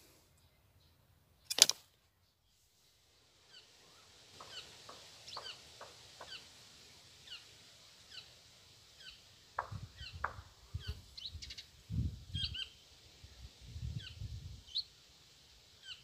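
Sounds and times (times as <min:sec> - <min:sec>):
faint hiss: 0:00.0 - 0:01.3, 0:02.0 - 0:16.0
sharp click: 0:01.5 - 0:01.9
small bird chirping: 0:03.5 - 0:08.4, 0:09.0 - 0:15.0, 0:15.8 - 0:16.0.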